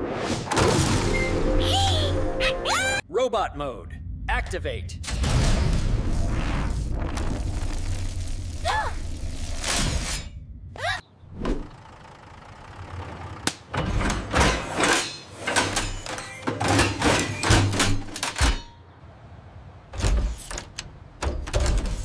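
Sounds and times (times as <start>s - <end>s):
metal clanks and mechanical clunks: 13.4s - 18.8s, 19.9s - 22.0s.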